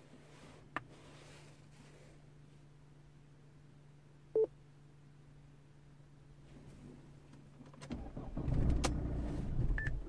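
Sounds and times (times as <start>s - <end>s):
faint steady hum: 0.0s - 10.0s
diesel engine cranking and firing: 7.9s - 9.9s.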